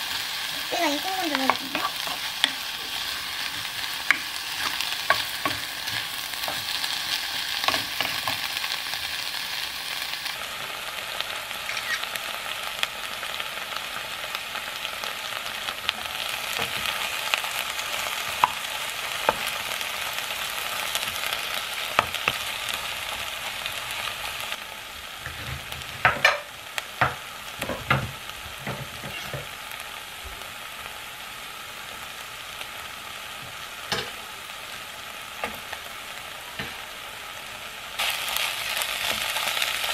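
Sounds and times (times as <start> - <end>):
food sizzling in a frying pan: 0.0 - 39.9
wooden spatula scraping pan: 1.3 - 8.4.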